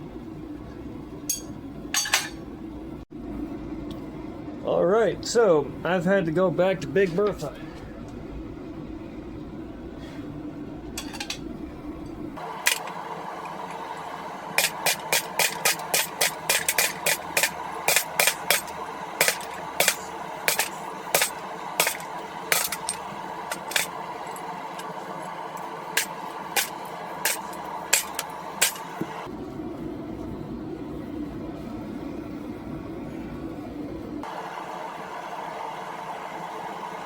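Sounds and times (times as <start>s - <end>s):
steady hum: 0.0s - 37.0s
hammer striking steel on anvil: 1.3s - 2.4s, 14.6s - 24.0s, 26.0s - 29.2s.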